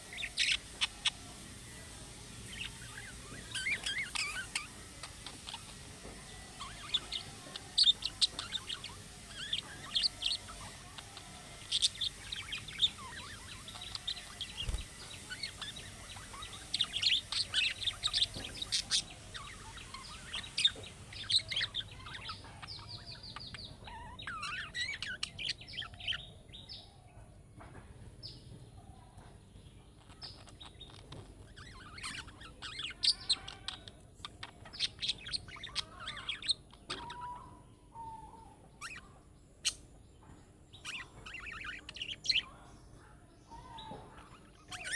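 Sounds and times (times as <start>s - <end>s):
budgerigars chirping: 0.0s - 26.2s, 30.0s - 37.6s, 40.8s - 42.6s, 43.6s - 44.9s.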